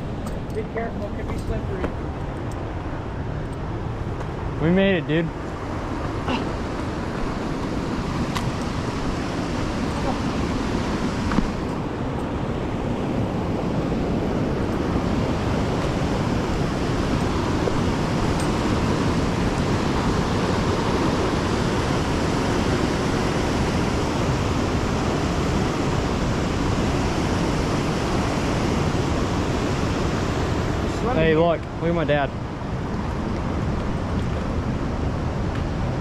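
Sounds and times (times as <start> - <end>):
waterfall rushing: 6.2 - 12.1, 12.8 - 32.2.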